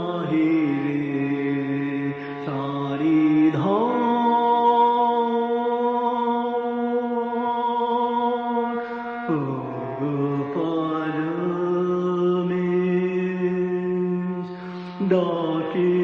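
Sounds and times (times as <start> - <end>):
chanted vocal music: 0.0 - 16.0.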